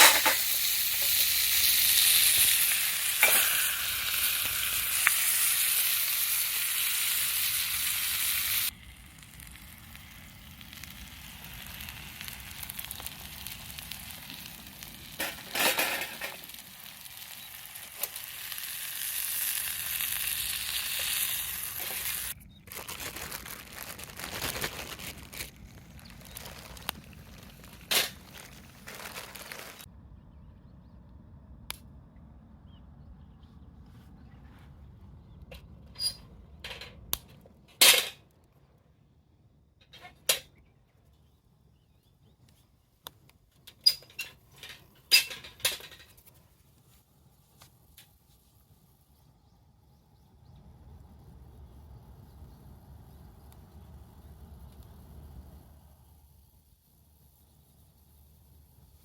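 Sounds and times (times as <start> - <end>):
food sizzling over fire: 0.0 - 22.4, 23.1 - 29.9, 51.0 - 59.0.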